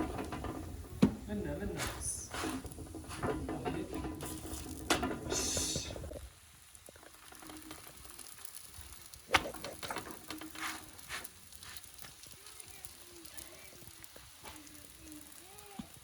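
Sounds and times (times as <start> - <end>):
handling clicks and knocks: 0.0 - 6.2
food sizzling on a hot griddle: 0.0 - 16.0.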